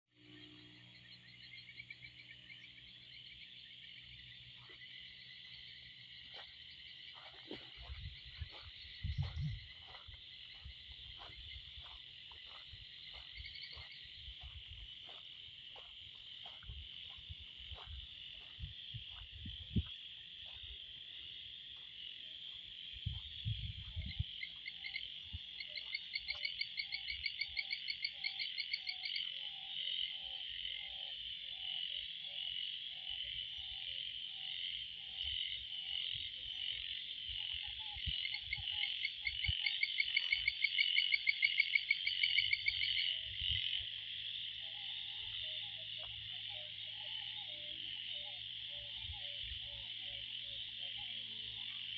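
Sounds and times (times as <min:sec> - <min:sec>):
frogs trilling chorus: 0:00.2 - 0:51.9
frog single calls: 0:16.4 - 0:51.9
low pulsing frog call: 0:16.4 - 0:51.9.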